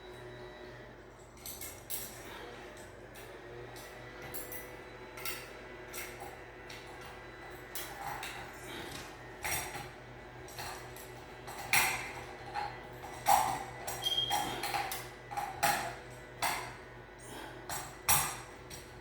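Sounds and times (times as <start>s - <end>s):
metallic clinks of hand tools: 13.2s - 15.8s.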